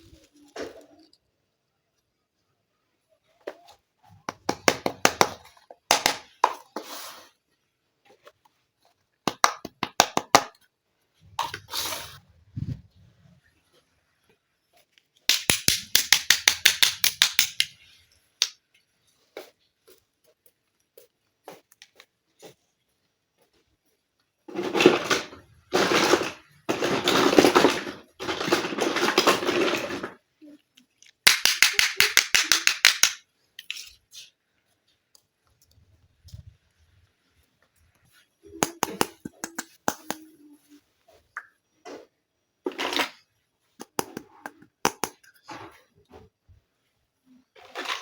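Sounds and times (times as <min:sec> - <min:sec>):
plastic toy pieces clicking: 0:15.2 - 0:17.8, 0:30.8 - 0:34.0.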